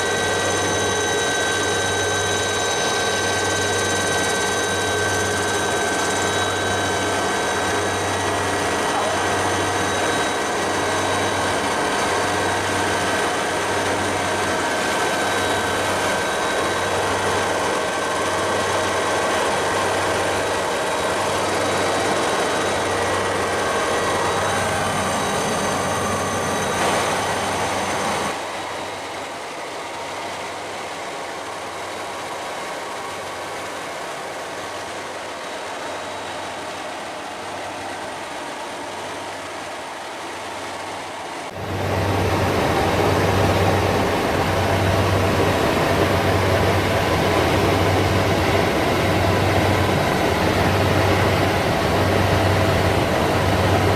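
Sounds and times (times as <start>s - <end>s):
high whining tones: 0.0s - 29.3s
helicopter engine and rotor drone: 0.0s - 53.9s.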